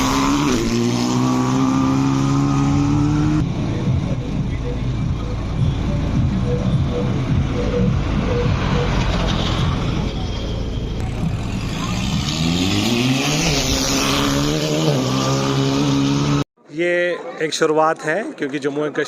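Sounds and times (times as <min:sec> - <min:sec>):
race car engine revving: 0:00.0 - 0:03.9, 0:11.0 - 0:16.5.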